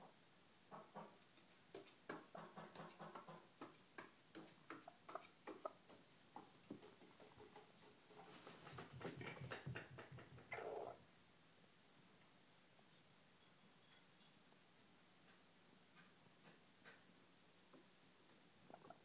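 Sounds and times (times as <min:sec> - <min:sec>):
chicken clucking: 0:00.7 - 0:01.2, 0:02.1 - 0:03.8, 0:04.4 - 0:11.0, 0:18.6 - 0:19.0.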